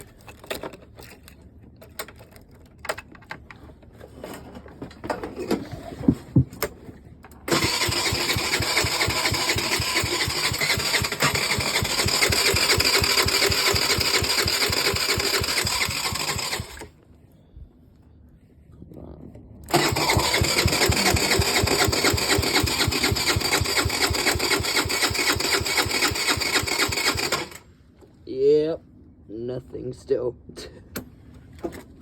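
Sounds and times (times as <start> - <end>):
moped electric starter cranking: 7.5 - 17.0, 19.7 - 27.7.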